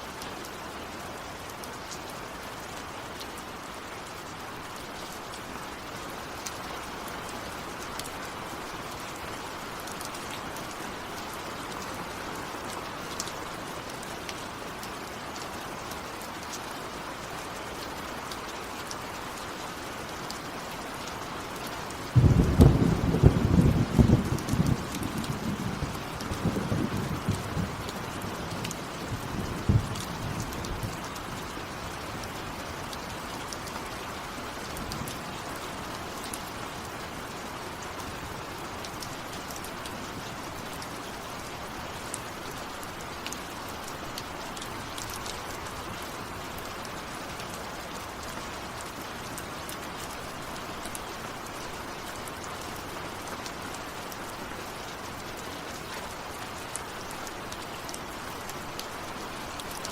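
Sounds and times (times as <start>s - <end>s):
raindrops ticking: 21.0s - 33.8s
rain hissing: 21.8s - 33.2s.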